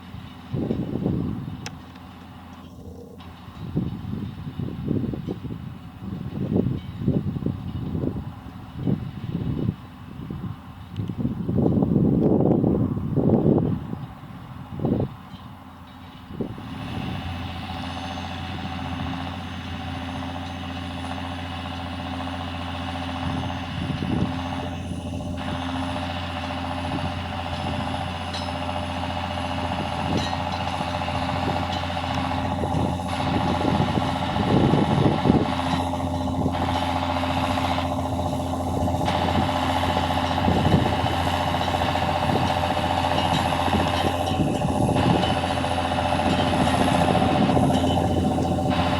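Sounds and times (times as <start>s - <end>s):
tractor engine running: 0.0s - 48.9s
knocks and rattles: 37.4s - 48.9s.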